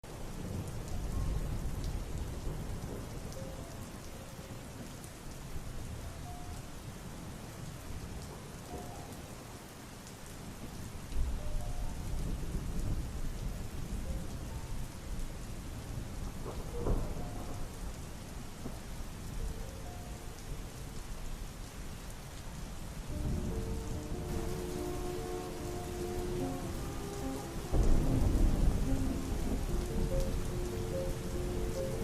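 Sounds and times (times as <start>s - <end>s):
steady rain: 0.0s - 32.0s
low rolling thunder: 0.1s - 3.6s, 10.6s - 19.4s, 23.1s - 32.0s.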